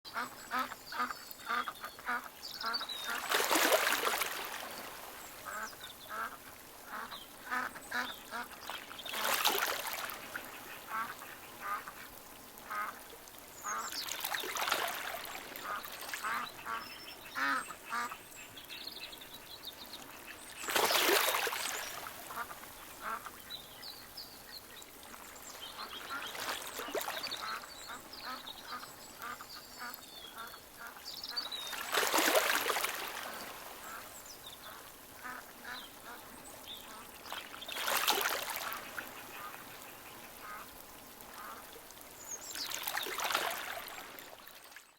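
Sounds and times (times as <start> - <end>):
water birds calling: 0.0 - 44.9.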